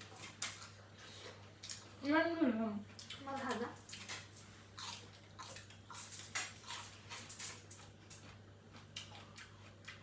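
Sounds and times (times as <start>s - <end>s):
chewing and mouth clicks: 2.9s - 10.0s.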